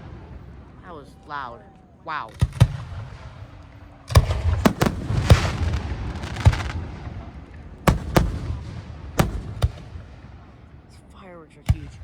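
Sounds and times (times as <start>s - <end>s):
fireworks bangs: 2.4s - 10.4s.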